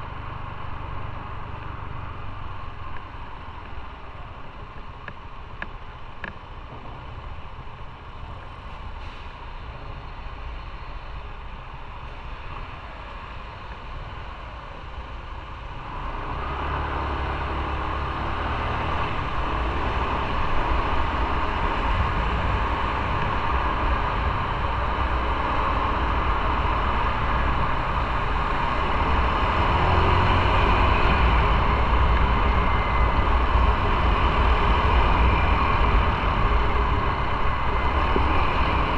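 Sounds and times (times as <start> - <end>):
wind and road noise: 0.0 - 38.9
motorcycle engine rumble: 18.8 - 38.9.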